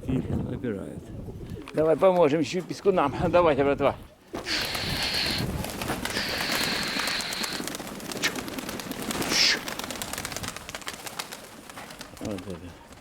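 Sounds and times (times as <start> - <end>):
wind buffeting microphone: 0.0 - 1.9, 3.0 - 6.9
breathy hissing: 4.4 - 8.5.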